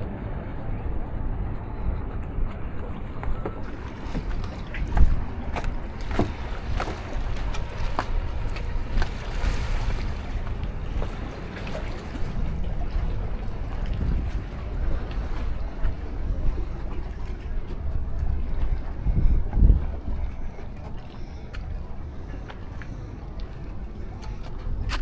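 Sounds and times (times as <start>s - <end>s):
wind buffeting microphone: 0.0s - 25.0s
sea surf wash: 3.6s - 19.1s.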